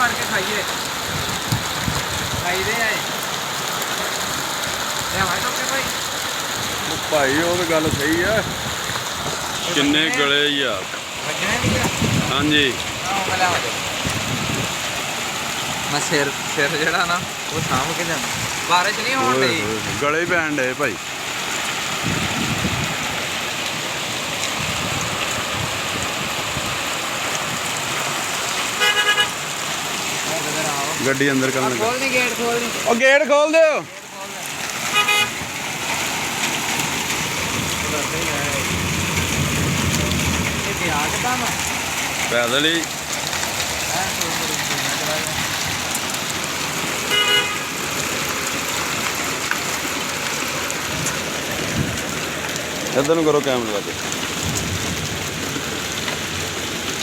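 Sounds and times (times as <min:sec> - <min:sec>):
rain falling: 0:00.0 - 0:57.0
short vehicle horn toot: 0:28.8 - 0:29.4, 0:34.9 - 0:35.4, 0:47.1 - 0:47.6.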